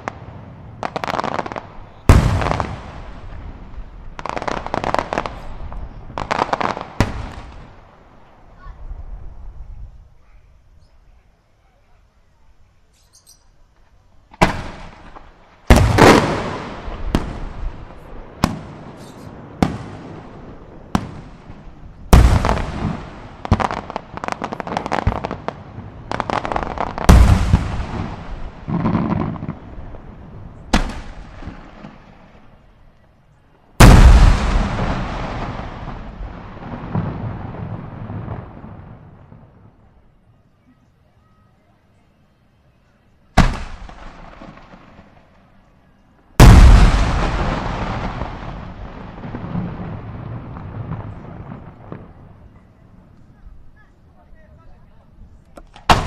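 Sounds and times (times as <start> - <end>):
fireworks exploding with sharp bangs: 0.0 - 40.8, 42.8 - 56.0.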